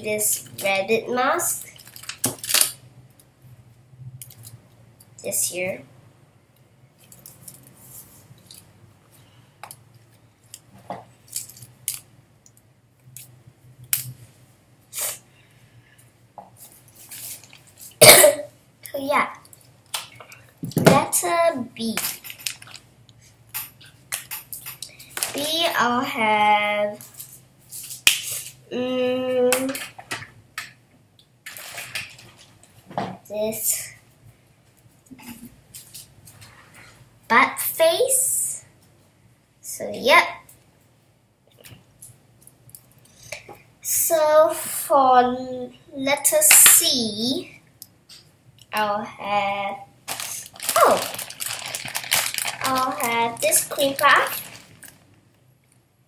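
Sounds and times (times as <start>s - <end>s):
mask rustling and clicking: 21.9s - 22.9s, 50.1s - 55.8s.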